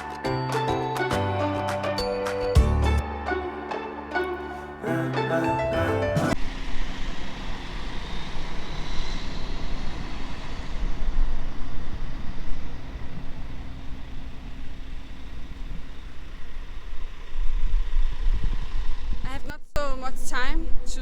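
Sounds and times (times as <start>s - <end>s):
bus engine rumble: 1.9s - 17.5s
road noise hiss: 6.3s - 19.2s.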